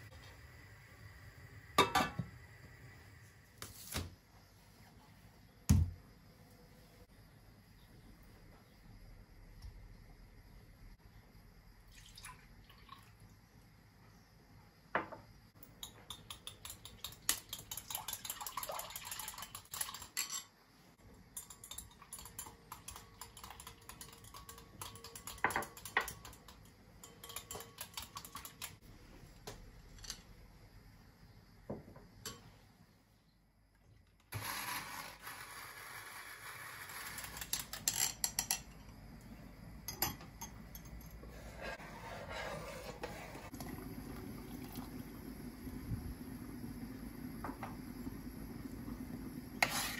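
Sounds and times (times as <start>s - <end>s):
dishes and utensils clinking: 21.3s - 28.8s.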